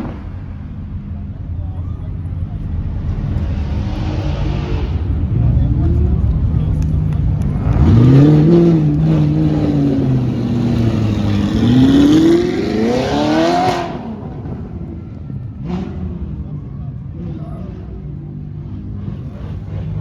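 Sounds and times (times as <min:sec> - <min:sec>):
car engine revving hard: 0:07.4 - 0:14.5.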